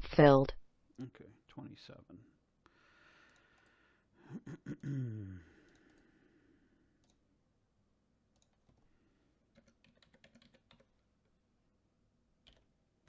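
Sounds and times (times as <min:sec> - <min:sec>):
typing on computer keyboard: 0:09.5 - 0:11.0, 0:12.4 - 0:12.7.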